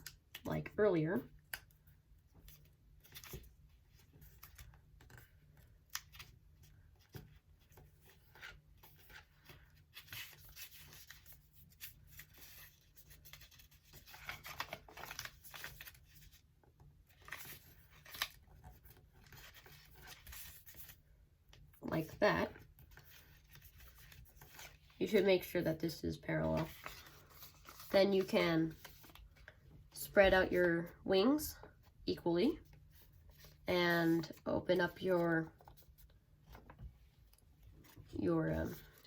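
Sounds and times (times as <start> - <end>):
paper rustling and scraping: 26.4 - 29.6.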